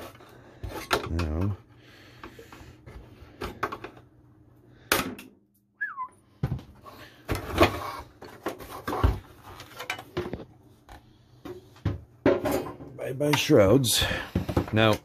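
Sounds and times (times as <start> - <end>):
plastic parts clicking and clattering: 7.2 - 10.5.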